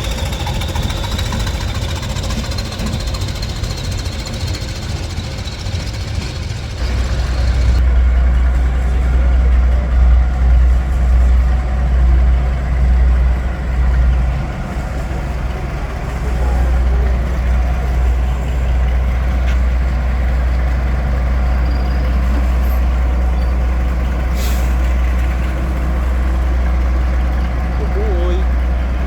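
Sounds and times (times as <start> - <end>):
diesel locomotive engine droning: 0.0 - 29.0.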